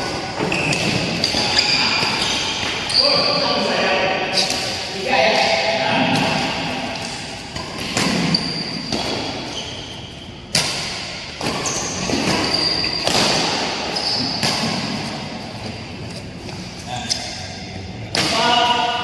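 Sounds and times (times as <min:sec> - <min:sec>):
shoe squeaks: 0:00.4 - 0:03.6, 0:04.3 - 0:04.7, 0:07.6 - 0:10.6, 0:11.4 - 0:15.2, 0:16.4 - 0:17.6
racket hitting shuttlecock: 0:04.4 - 0:09.5, 0:10.5 - 0:15.2.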